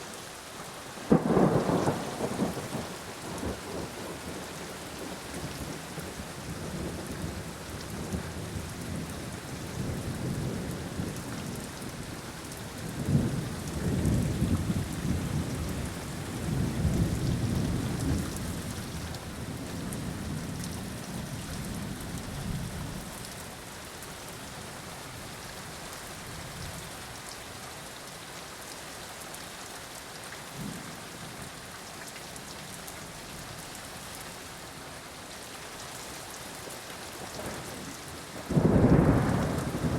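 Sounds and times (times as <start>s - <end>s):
rain falling: 0.0s - 39.9s
thunder rumbling: 1.1s - 4.1s, 38.4s - 39.9s.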